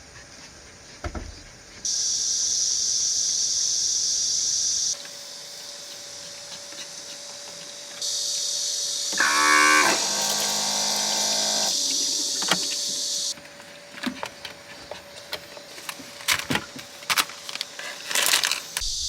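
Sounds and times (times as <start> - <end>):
steady high hiss: 1.9 - 13.9, 16.8 - 19.0
cow mooing: 9.2 - 12.6.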